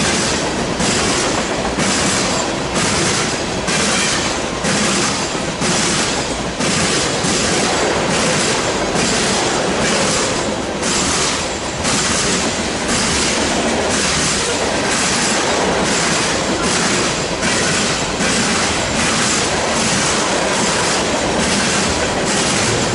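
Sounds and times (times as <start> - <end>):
freight train wheels on rails: 0.0 - 22.9.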